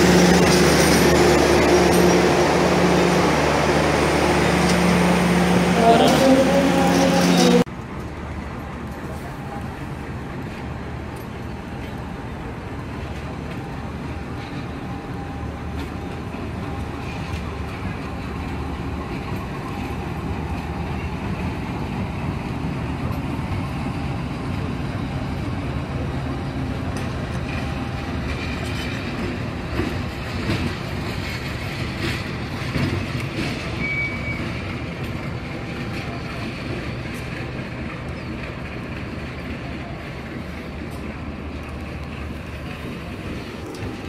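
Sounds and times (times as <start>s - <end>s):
locomotive engine drone: 0.0s - 44.0s
wheel squeals on rails: 30.5s - 36.4s.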